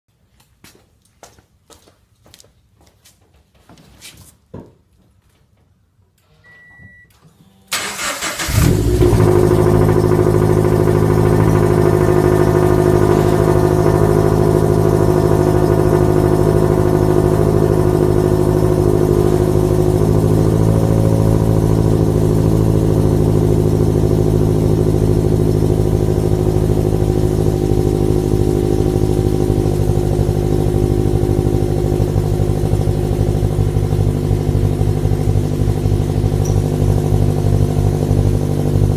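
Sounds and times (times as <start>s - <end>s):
short beep: 6.3s - 7.8s
car engine starting and idling: 6.4s - 38.9s.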